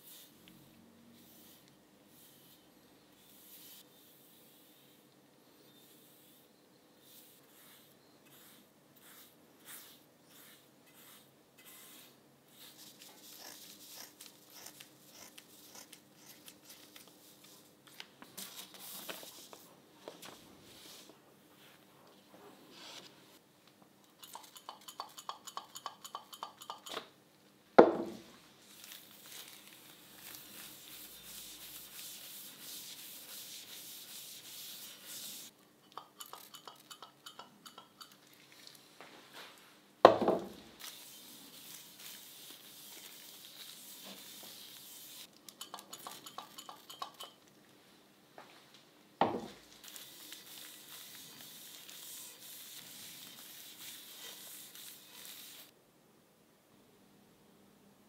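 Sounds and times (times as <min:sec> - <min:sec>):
rubbing and scraping strokes: 0:30.2 - 0:35.5, 0:49.8 - 0:55.7.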